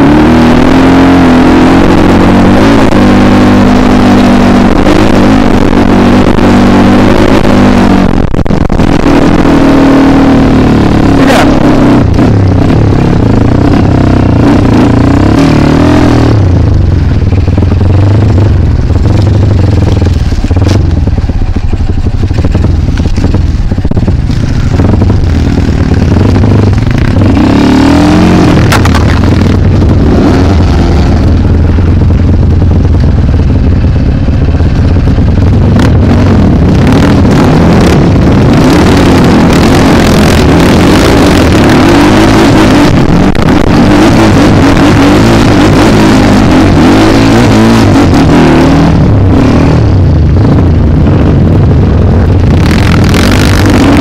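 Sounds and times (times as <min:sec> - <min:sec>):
motorbike engine revving: 0:00.0 - 0:54.0.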